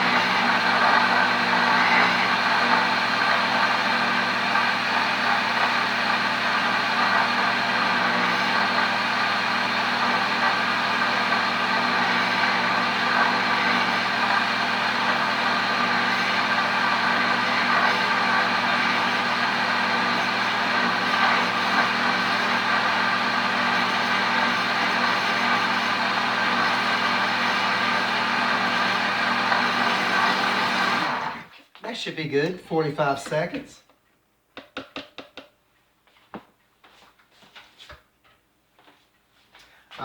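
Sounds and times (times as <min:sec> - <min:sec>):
blender motor blending ice: 0:00.0 - 0:31.5.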